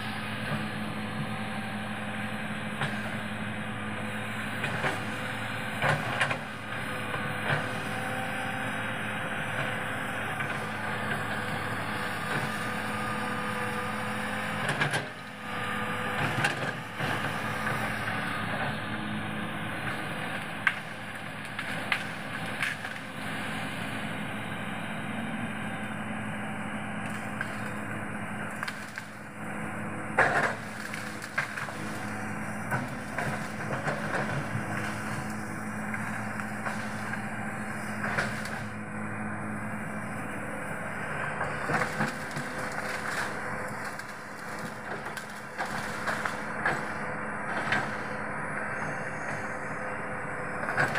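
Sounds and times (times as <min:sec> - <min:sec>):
excavator engine running: 0:00.0 - 0:50.9
trees cracking and breaking: 0:19.9 - 0:23.8, 0:27.0 - 0:38.8, 0:40.7 - 0:48.1.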